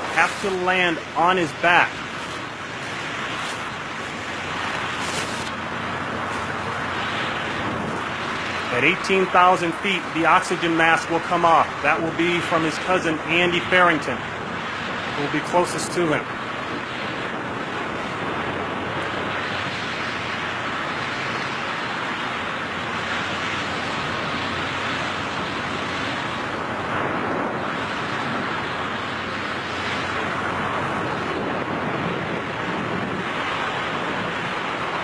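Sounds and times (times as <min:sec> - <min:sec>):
wind rushing on microphone: 0:00.0 - 0:35.0.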